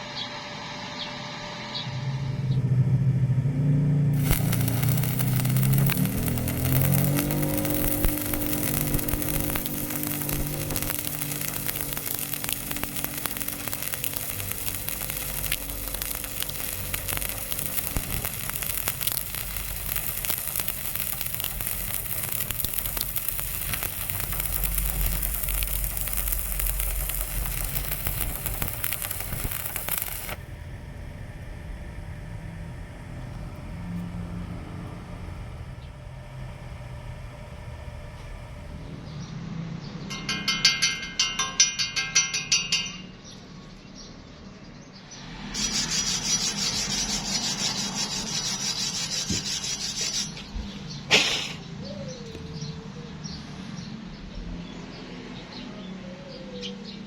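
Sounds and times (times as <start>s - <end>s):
low hum: 0.0s - 39.2s
welding arc crackling: 4.1s - 30.5s, 45.2s - 51.6s.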